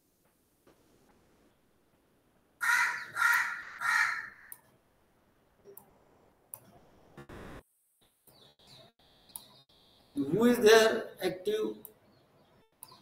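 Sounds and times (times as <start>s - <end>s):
loud bird calls: 2.6s - 4.5s.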